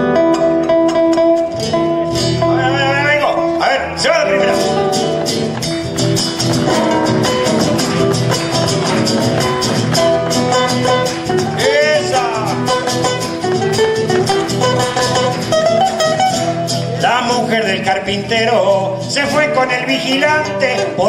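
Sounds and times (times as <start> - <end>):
strummed guitar: 0.0 - 21.0
person's voice: 2.6 - 5.3
hand clapping in time: 4.6 - 16.9.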